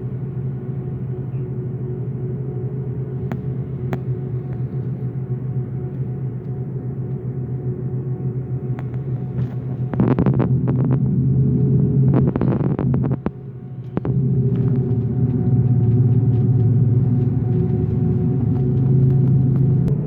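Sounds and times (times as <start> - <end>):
airliner engine rumble: 0.0 - 20.0
faint steady hum: 0.0 - 20.0.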